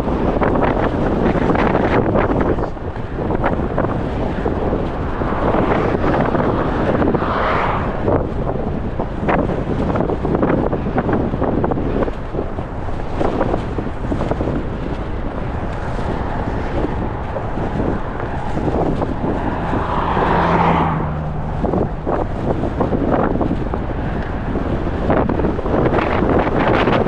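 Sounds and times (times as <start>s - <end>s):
wind buffeting microphone: 0.0s - 27.0s
car driving past: 4.9s - 8.2s, 15.4s - 24.8s.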